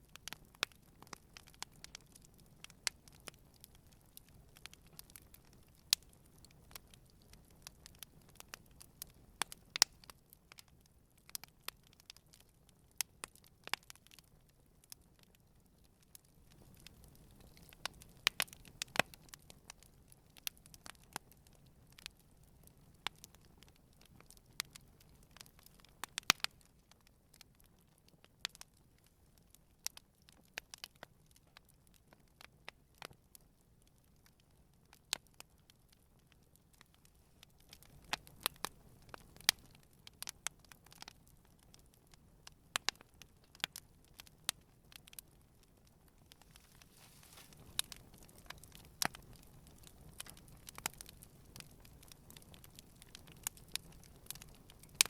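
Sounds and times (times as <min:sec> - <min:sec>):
campfire crackling and popping: 0:00.0 - 0:55.0
fire hiss: 0:46.4 - 0:47.9.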